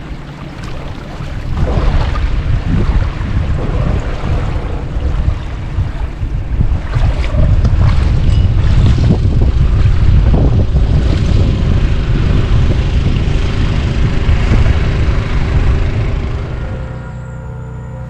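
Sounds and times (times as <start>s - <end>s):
wind buffeting microphone: 0.0s - 17.1s.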